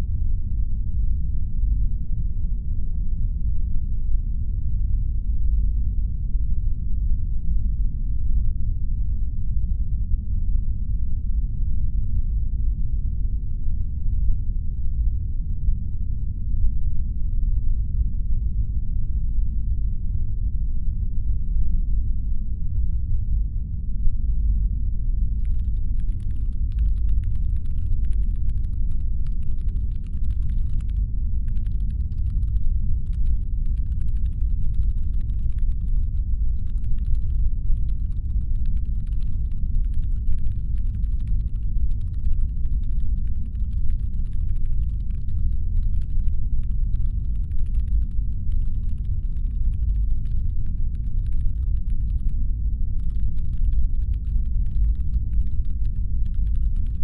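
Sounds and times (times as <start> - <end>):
deep engine hum rumble: 22.9 - 57.0
rapid keyboard-like clicking: 25.4 - 52.4, 53.0 - 57.0.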